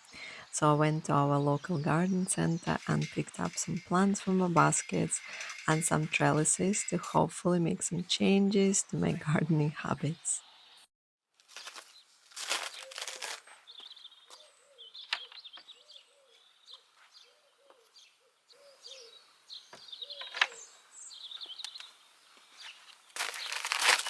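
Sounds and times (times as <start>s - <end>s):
birds chirping: 0.0s - 10.9s, 11.9s - 24.0s
brief rustling: 11.4s - 13.5s, 22.9s - 24.0s.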